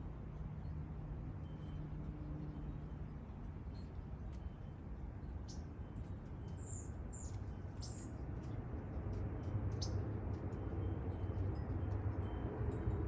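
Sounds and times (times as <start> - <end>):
small bird chirping: 6.6 - 8.1.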